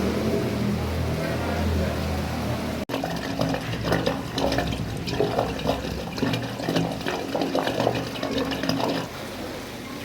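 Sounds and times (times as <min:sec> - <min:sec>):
water splashing and rushing: 0:02.9 - 0:09.1.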